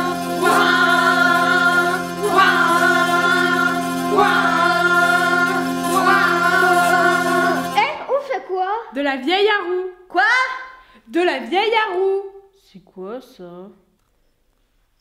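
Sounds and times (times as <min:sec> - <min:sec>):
hurdy-gurdy playing slow tune: 0:00.0 - 0:08.0.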